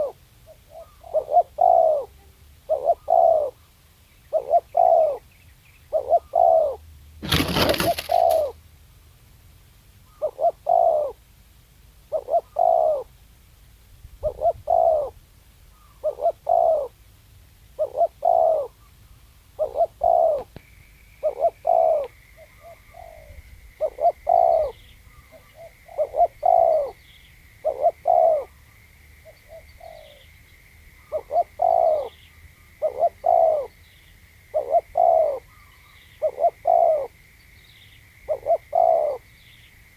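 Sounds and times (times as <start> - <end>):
dove cooing: 0.0 - 3.6, 4.3 - 5.3, 5.9 - 8.6, 10.1 - 11.2, 12.1 - 13.1, 14.2 - 15.2, 15.8 - 17.0, 17.8 - 18.8, 19.6 - 20.6, 21.2 - 28.6, 29.2 - 30.3, 31.0 - 32.2, 32.8 - 33.8, 34.5 - 37.2, 38.3 - 39.3
small birds chirping: 7.2 - 8.6, 17.8 - 39.9.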